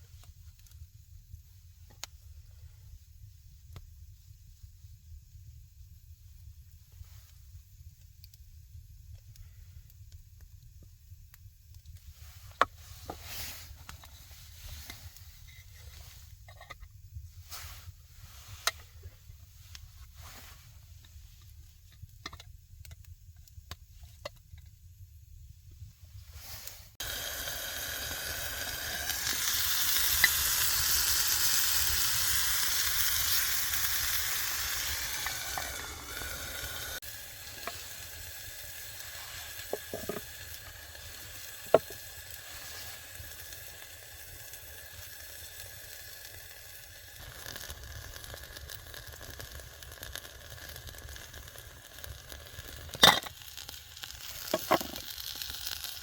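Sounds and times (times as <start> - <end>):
food sizzling in a hot pan: 26.4 - 56.0
sharp pops of frying: 27.0 - 42.3, 47.2 - 56.0.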